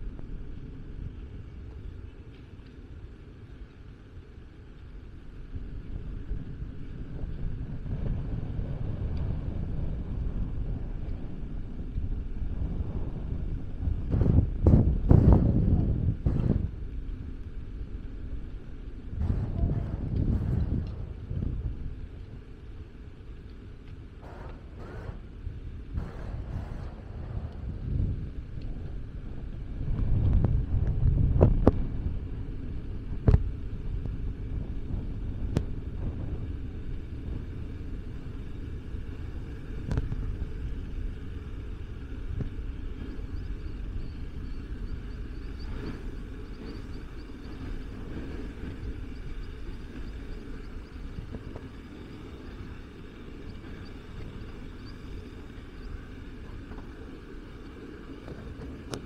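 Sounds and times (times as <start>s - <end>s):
street traffic rumble: 0.0s - 59.0s.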